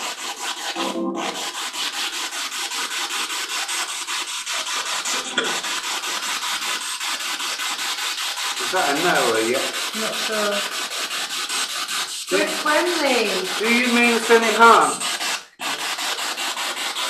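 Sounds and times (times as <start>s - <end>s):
radio static sweeping: 12.3s - 15.0s.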